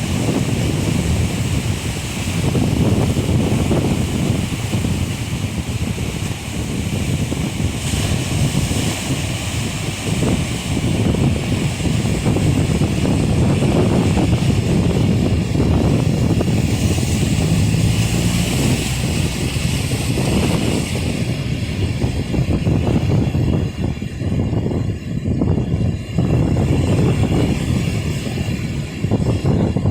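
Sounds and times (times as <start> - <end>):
surf: 0.0 - 29.9
wind buffeting the microphone: 0.0 - 29.9
passing street traffic: 9.0 - 29.9.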